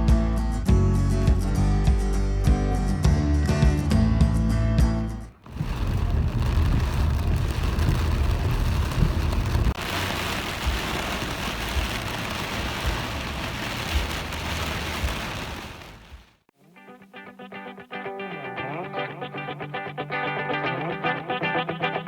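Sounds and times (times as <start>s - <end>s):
low rumbles: 3.8s - 16.5s
water hissing: 5.3s - 16.4s.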